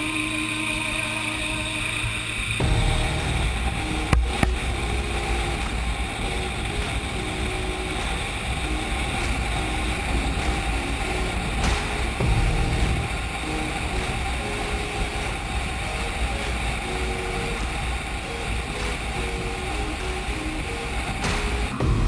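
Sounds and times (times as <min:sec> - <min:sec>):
sharp knocks: 0:02.6 - 0:15.2, 0:21.0 - 0:22.0.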